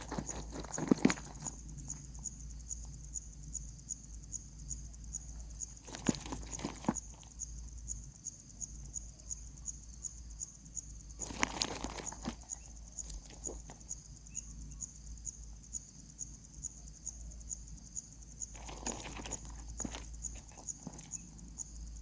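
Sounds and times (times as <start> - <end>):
insect chirping: 0.0 - 22.0
brief rustle: 5.8 - 7.3, 11.2 - 13.8, 18.6 - 21.2.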